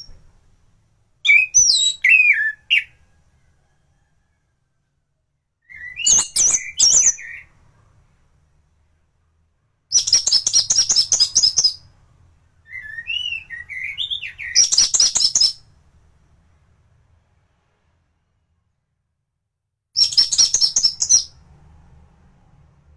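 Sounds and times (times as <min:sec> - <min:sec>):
thrush singing whistles and trills: 0:01.2 - 0:03.0, 0:05.7 - 0:07.5, 0:12.7 - 0:15.6, 0:20.0 - 0:21.4.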